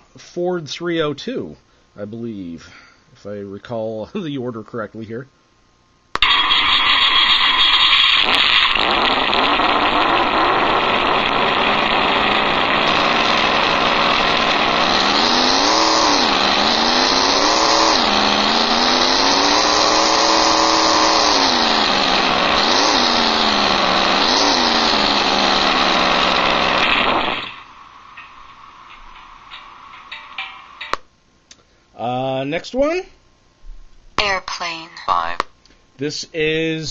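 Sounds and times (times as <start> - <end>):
recorded engine idling and revving: 7.1 - 30.2.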